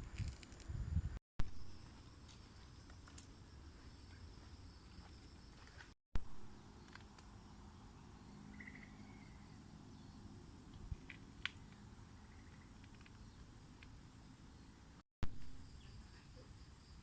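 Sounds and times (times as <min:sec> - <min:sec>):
low rumbling outdoor ambience: 0:00.0 - 0:17.0
short chirping call: 0:08.5 - 0:09.6.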